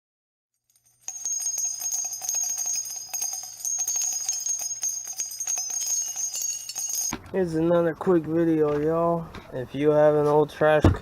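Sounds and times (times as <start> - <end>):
small bells jingling: 0.6 - 7.2.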